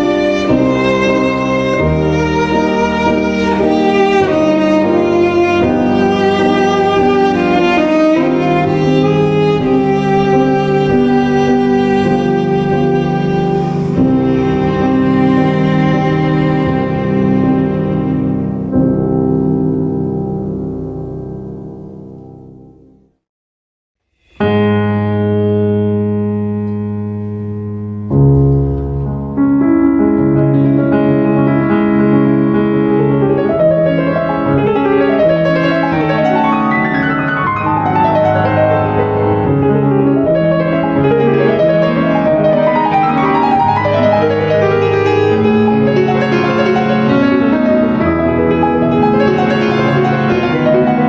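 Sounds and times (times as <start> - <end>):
piano music: 0.0 - 23.1, 24.2 - 51.0.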